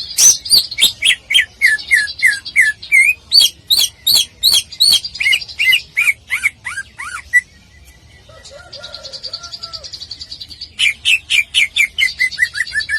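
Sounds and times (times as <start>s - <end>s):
bird singing whistled notes: 0.0s - 7.9s, 10.6s - 12.9s.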